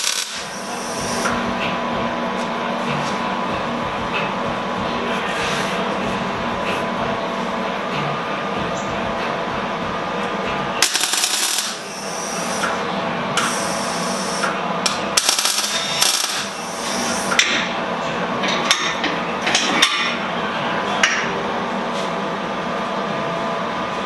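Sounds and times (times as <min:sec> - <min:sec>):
welder crackling sizzle: 0:00.0 - 0:00.5, 0:10.8 - 0:11.9, 0:15.2 - 0:16.6.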